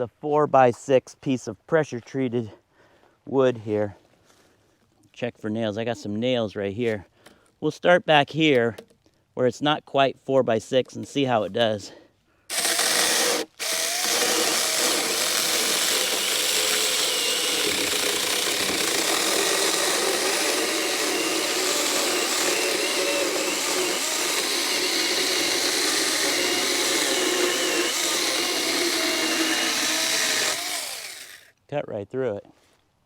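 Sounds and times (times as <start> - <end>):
electric chainsaw cutting wood: 12.5 - 31.5.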